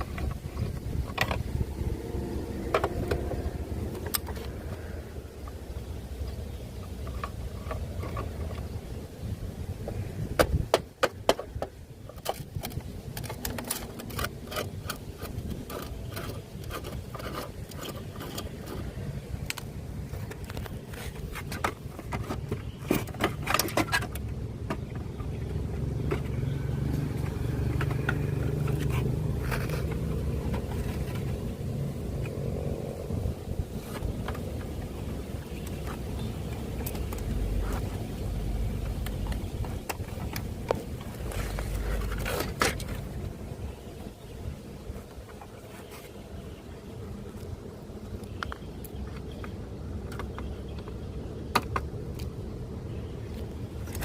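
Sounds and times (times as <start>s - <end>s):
hands clicking and scraping parts: 0.0s - 1.9s, 2.5s - 9.0s, 9.8s - 43.2s
low steady hum: 0.0s - 54.0s.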